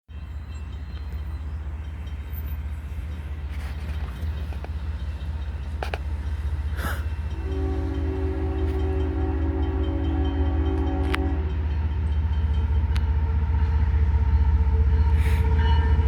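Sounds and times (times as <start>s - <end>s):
diesel locomotive low throb: 0.1s - 16.0s
train air horn chord: 6.7s - 12.0s.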